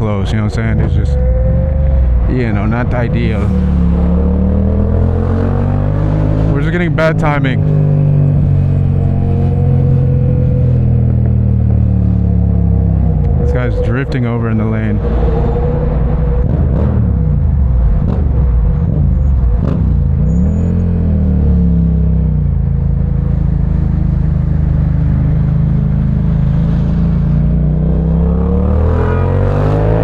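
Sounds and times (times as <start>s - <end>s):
motorcycle engine running: 15.6s - 28.8s.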